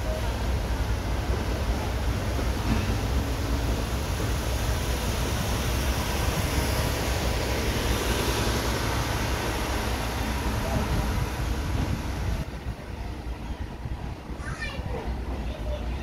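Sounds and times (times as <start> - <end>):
train wheels rumbling and rattling: 0.0 - 16.0.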